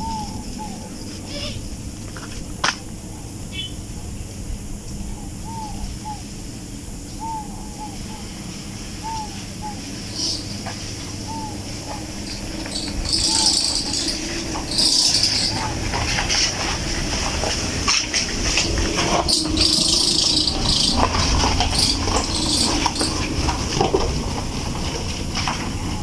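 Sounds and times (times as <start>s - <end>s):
bird chirping: 0.0s - 1.7s, 3.1s - 4.1s, 9.0s - 10.6s, 11.2s - 15.8s.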